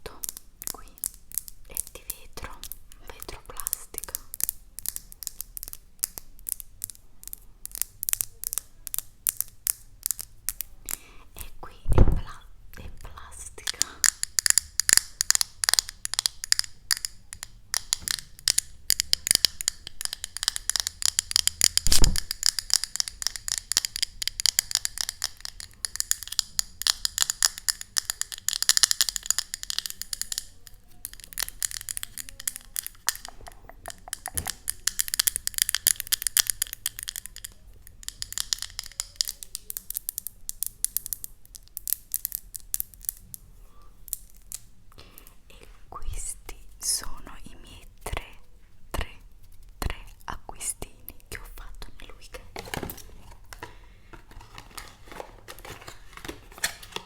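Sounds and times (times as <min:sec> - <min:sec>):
fingernail tapping and scraping: 0:13.6 - 0:41.2.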